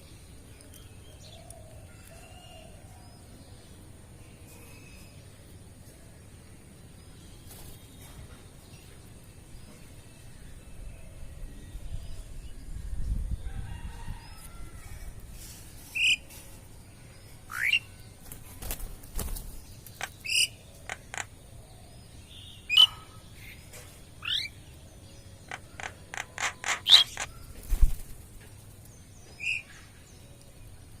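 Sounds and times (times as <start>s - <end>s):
birds calling: 17.5s - 28.0s.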